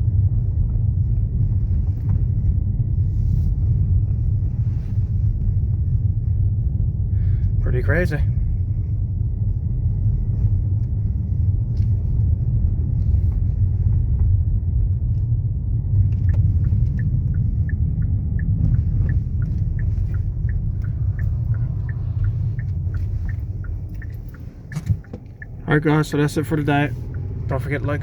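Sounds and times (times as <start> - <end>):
vehicle interior rumble: 0.0 - 28.0
light regular ticking: 15.8 - 28.0.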